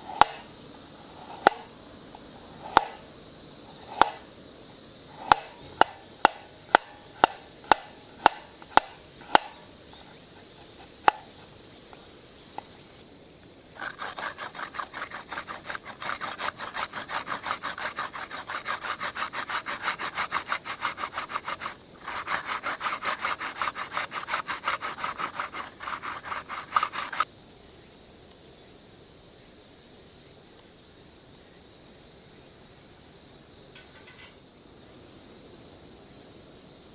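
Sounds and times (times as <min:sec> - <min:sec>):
hand saw cutting wood: 0:00.0 - 0:04.3, 0:05.1 - 0:11.6, 0:13.8 - 0:27.2
wood knocking on wood: 0:01.2 - 0:01.7, 0:02.6 - 0:03.0, 0:03.9 - 0:04.2, 0:05.1 - 0:11.5.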